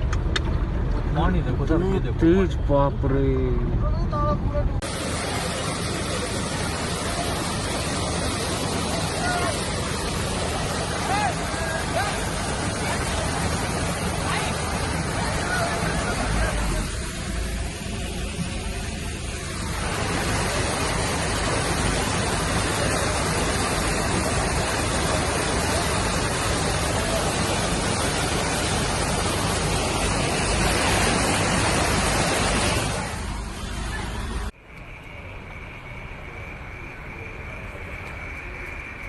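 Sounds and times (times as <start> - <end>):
floodwater rushing: 4.8 - 34.6
faint steady high tone: 33.6 - 39.0.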